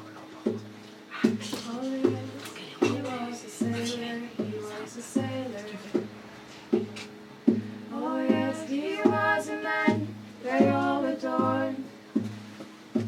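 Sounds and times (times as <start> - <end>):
low thumping beat: 0.4 - 13.0
wordless singing: 1.1 - 6.2, 7.9 - 12.0.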